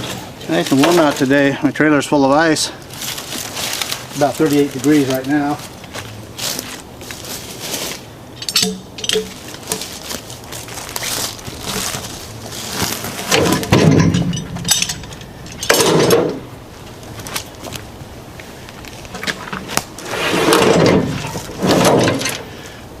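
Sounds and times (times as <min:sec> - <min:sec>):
heavy thumps of logs landing: 0:13.0 - 0:16.5, 0:20.5 - 0:22.5.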